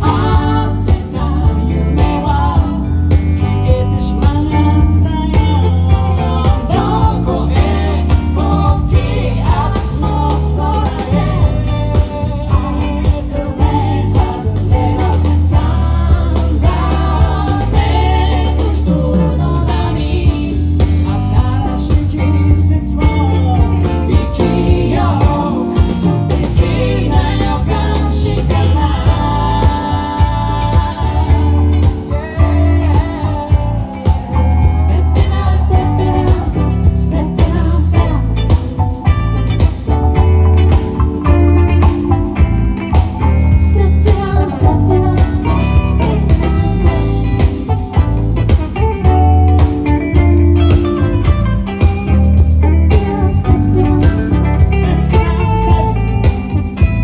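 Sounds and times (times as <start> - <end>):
person singing: 0.0 - 38.7, 43.5 - 48.1, 50.8 - 56.8
band playing pop-rock: 0.0 - 57.0.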